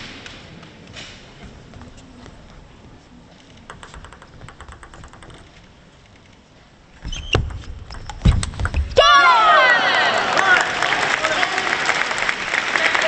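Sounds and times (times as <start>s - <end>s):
arena ambience: 0.0s - 11.4s
table tennis ball bouncing: 3.6s - 5.7s, 7.0s - 9.0s.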